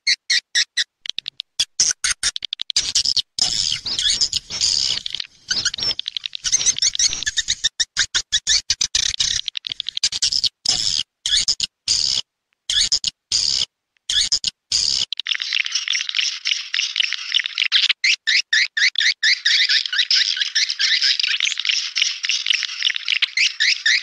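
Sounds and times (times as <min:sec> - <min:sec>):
swiftlets twittering chirps: 0:02.8 - 0:10.4, 0:19.0 - 0:24.0.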